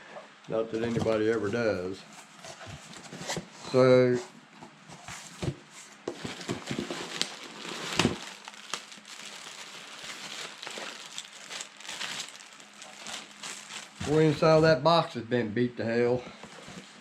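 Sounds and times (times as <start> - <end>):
packing rustling and crinkling: 6.0 - 14.6
cardboard box being opened: 6.1 - 14.4.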